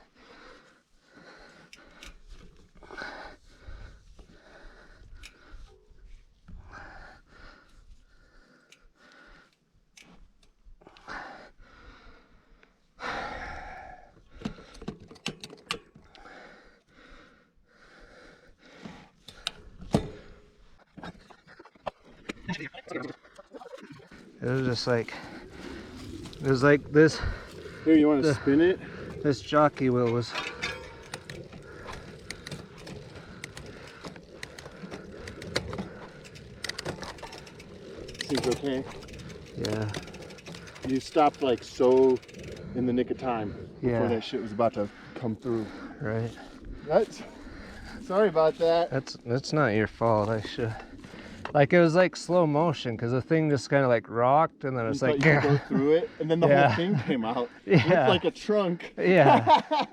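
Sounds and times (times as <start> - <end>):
person breathing hard: 0.0 - 9.7, 10.8 - 15.0, 16.1 - 21.0, 27.1 - 38.2, 44.8 - 48.0
bike clicks and knocks: 14.3 - 16.2, 19.2 - 21.2, 28.9 - 42.7.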